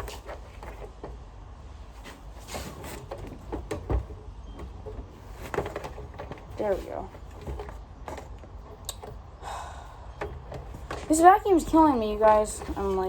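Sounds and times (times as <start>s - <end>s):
vacuum cleaner parts clicking: 10.1s - 13.0s.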